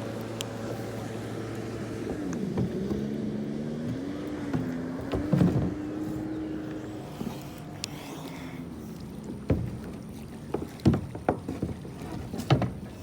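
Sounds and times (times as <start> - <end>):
motor hum: 0.0 - 13.0
paddle knocking against kayak: 1.9 - 3.1, 3.8 - 7.8, 9.1 - 13.0.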